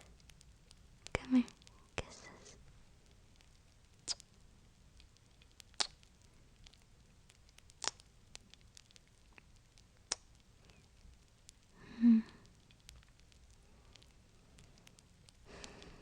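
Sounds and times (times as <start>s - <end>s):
fireplace crackling: 0.0s - 16.0s
person humming softly: 11.8s - 12.5s.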